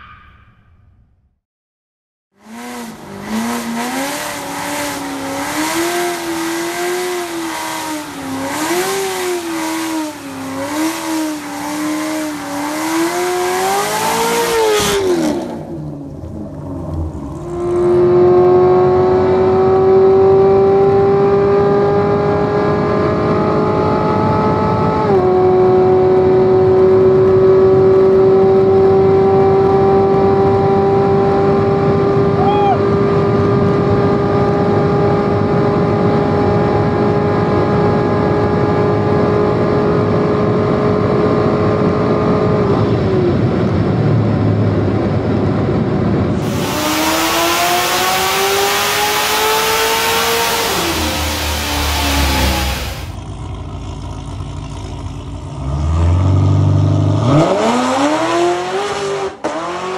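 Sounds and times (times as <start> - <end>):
car engine revving: 2.4 - 59.9
engine droning at full speed: 2.4 - 59.9
loud hiss: 46.4 - 47.6.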